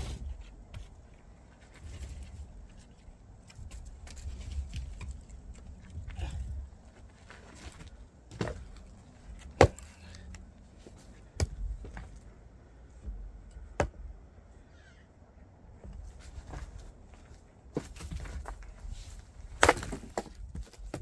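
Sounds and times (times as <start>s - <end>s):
axe chopping firewood: 9.4s - 10.3s, 11.3s - 12.0s, 13.6s - 14.1s, 19.6s - 21.0s.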